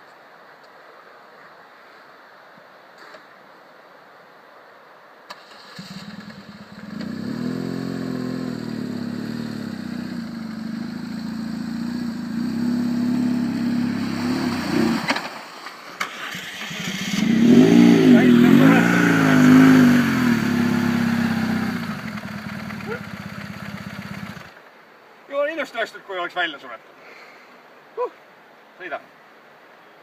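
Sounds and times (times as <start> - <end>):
motorcycle engine starting and revving: 5.3 - 15.3, 16.0 - 24.5.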